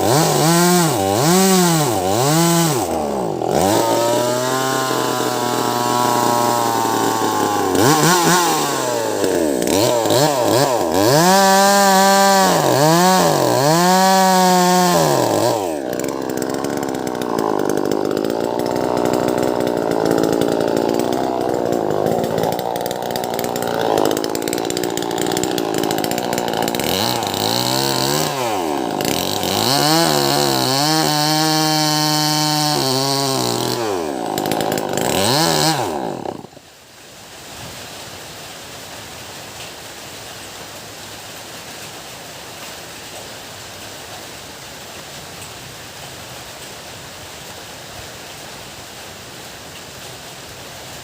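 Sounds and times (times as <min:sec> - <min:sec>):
chainsaw revving: 0:00.0 - 0:36.6
chainsaw cutting log: 0:00.0 - 0:36.7.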